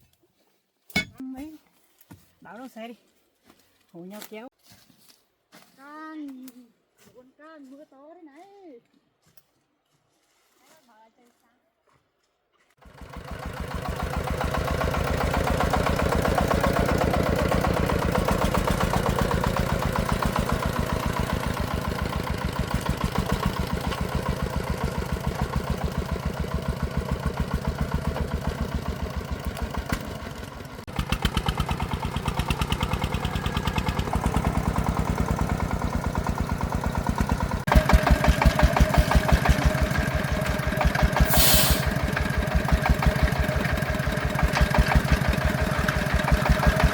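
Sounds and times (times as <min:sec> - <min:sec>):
diesel engine running: 0:12.8 - 0:46.9
brief hiss: 0:41.3 - 0:41.9.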